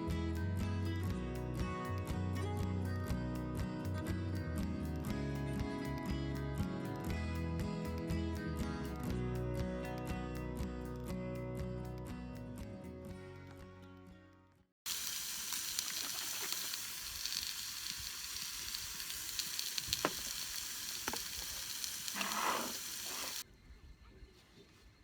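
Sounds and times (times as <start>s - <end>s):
background music: 0.0s - 14.5s
food sizzling: 14.9s - 23.4s.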